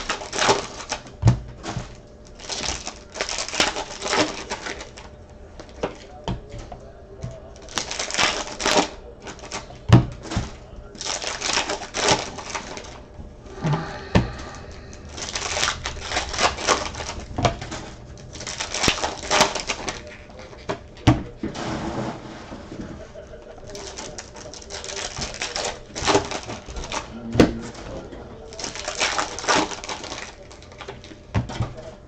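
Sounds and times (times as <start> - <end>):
trading cards rustling and shuffling: 13.7 - 21.0.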